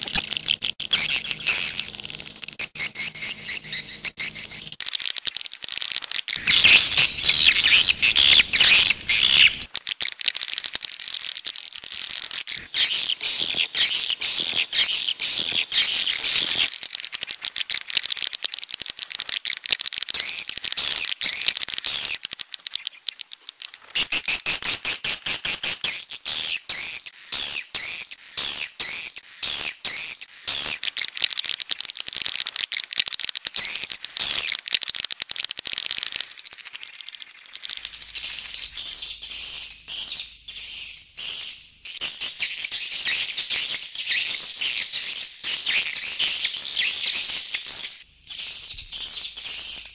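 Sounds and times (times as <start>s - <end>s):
swiftlets twittering: 0.0s - 25.5s, 29.1s - 38.7s.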